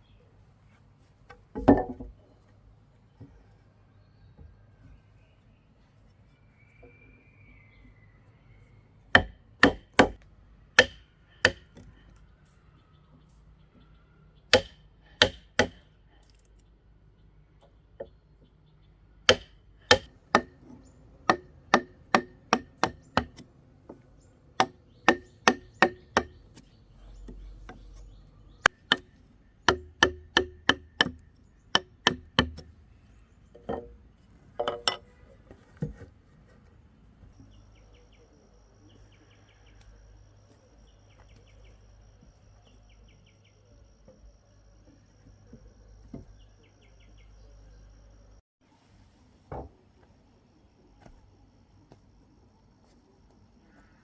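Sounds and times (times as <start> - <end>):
hand tool striking: 9.2 - 10.2, 10.8 - 11.8, 14.5 - 15.8, 19.3 - 23.4, 24.6 - 26.6, 28.6 - 32.7, 34.6 - 35.1.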